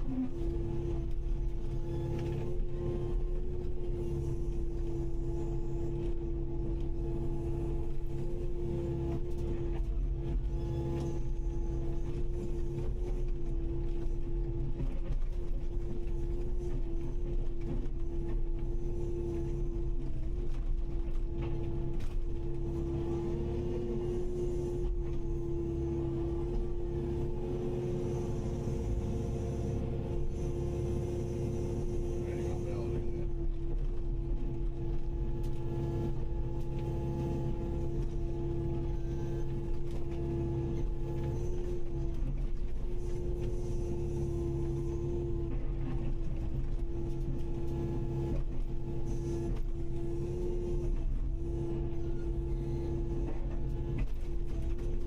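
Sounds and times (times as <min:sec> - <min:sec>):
excavator engine running: 0:00.0 - 0:55.0.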